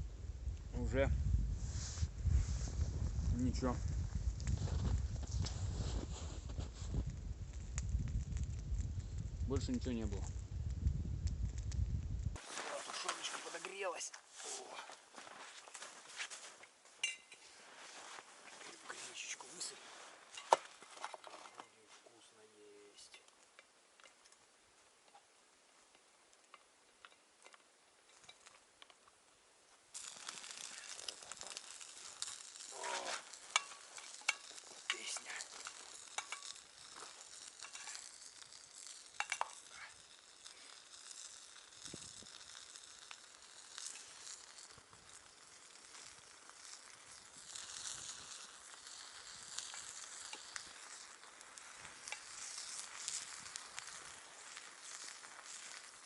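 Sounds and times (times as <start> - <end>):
meat sizzling: 22.7 - 56.0.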